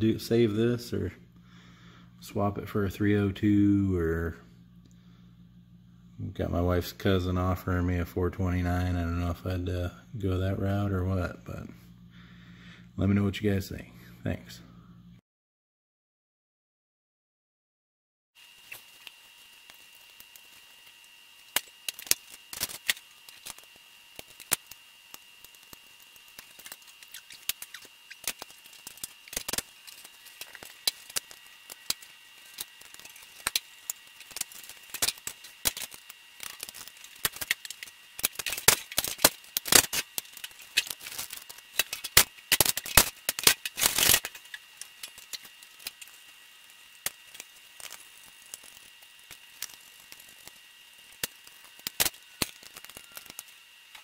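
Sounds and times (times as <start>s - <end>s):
small hard objects clicking and rattling: 18.7s - 54.0s.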